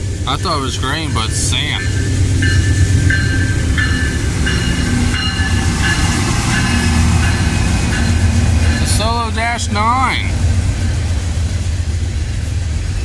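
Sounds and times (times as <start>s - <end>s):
freight train rumbling: 0.0s - 13.0s
high-pitched squeals: 1.0s - 9.0s.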